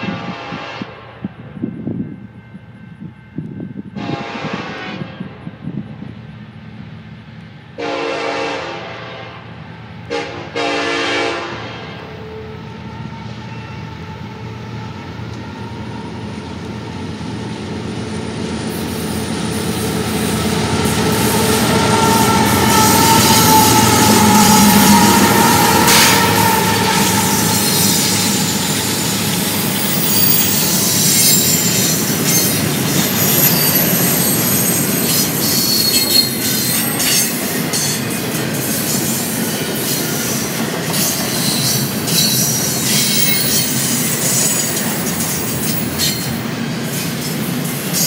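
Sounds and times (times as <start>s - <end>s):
locomotive air horn: 0.0s - 1.5s, 4.0s - 5.6s, 7.8s - 15.1s, 20.8s - 31.6s
high rail noise: 0.0s - 48.0s
train engine and wheels approaching: 0.0s - 48.0s.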